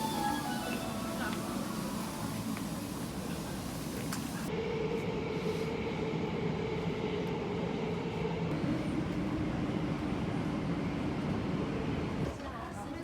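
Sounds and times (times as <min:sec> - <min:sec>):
train mechanical hum: 0:00.0 - 0:13.0.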